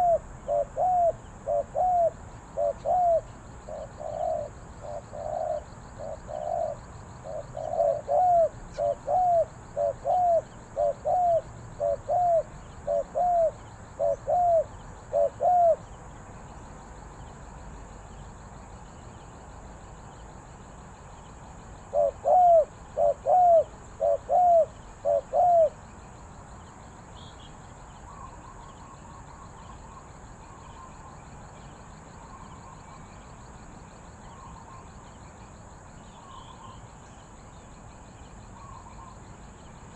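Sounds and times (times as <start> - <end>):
dove cooing: 0.0 - 15.8, 21.9 - 25.8.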